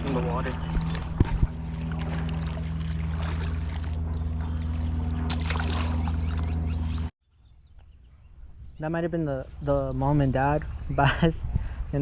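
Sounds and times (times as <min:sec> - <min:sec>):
boat motor droning: 0:00.0 - 0:07.1.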